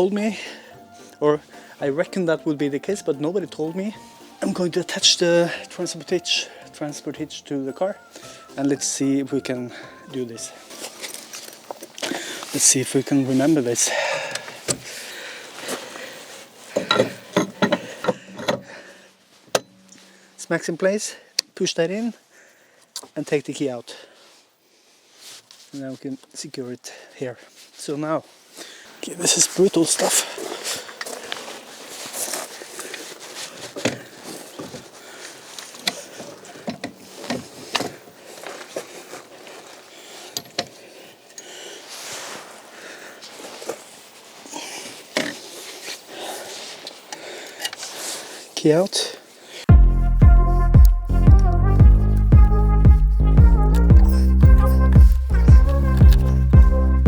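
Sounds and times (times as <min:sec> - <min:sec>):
bike carrier metal clicks and clunks: 0:16.8 - 0:18.9.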